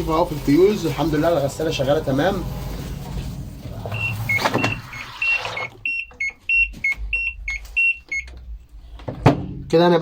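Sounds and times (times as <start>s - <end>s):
washing machine two-note beeping: 3.8s - 8.3s.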